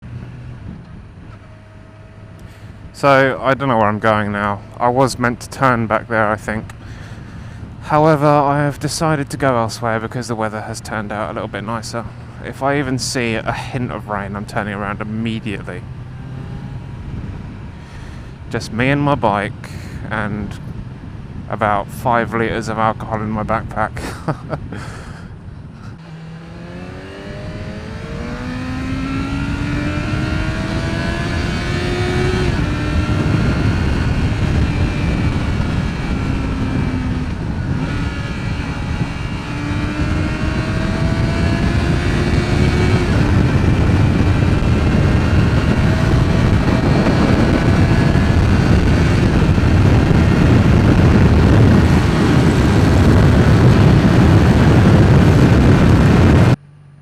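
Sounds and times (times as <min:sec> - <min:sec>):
wind rush on microphone: 0:00.0 - 0:08.2, 0:10.6 - 0:56.6
motorcycle engine accelerating: 0:10.9 - 0:19.2, 0:24.3 - 0:57.0.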